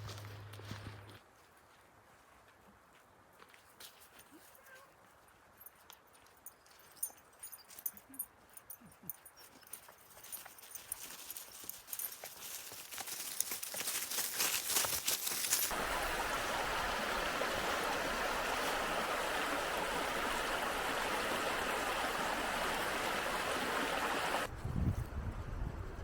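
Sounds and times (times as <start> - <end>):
river water rushing: 15.5 - 24.5.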